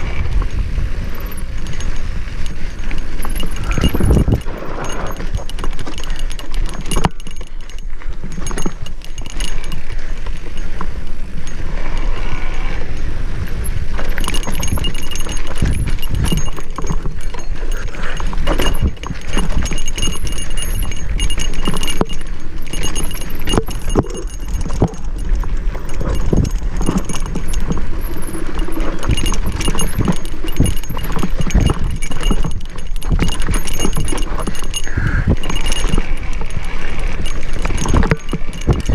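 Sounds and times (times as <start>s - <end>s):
mountain bike rattling over rocks: 0.0s - 38.9s
wind rumble on microphone: 0.0s - 38.9s.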